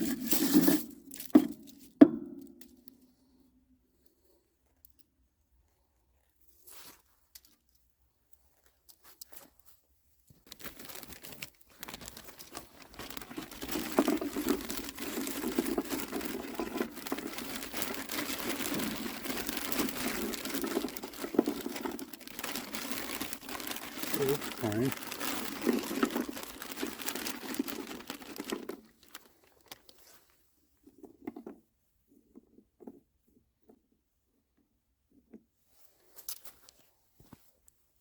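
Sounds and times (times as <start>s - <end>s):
crinkling and rustling: 4.6s - 31.5s, 35.7s - 37.8s.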